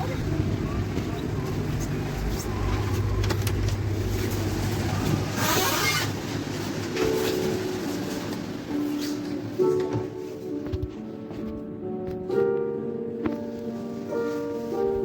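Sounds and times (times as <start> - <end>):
train low hum: 0.0 - 11.6.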